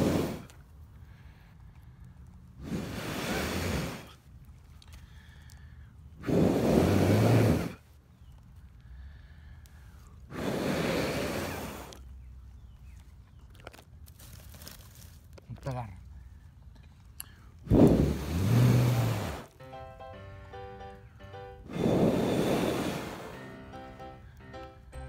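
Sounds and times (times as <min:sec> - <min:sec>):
person blowing on embers: 0:00.0 - 0:12.2, 0:17.5 - 0:25.0.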